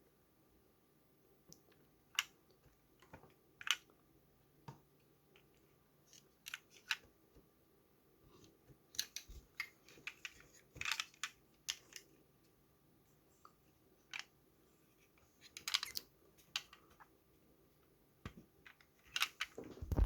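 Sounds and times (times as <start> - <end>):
plastic parts clicking: 6.2 - 7.1, 8.9 - 12.1, 15.4 - 17.0, 18.7 - 20.0.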